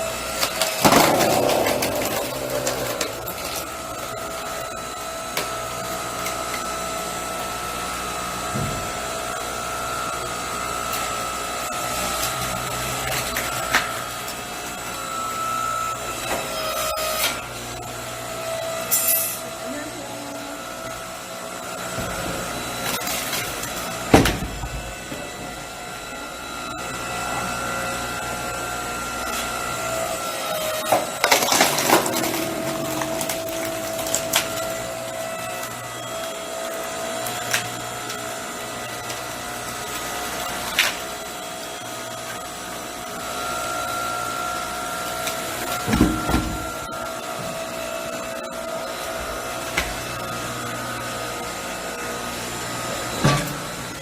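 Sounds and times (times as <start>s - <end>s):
log splitter motor whining: 0.0s - 54.0s
wood cracking and splitting: 0.3s - 4.3s, 30.8s - 35.2s.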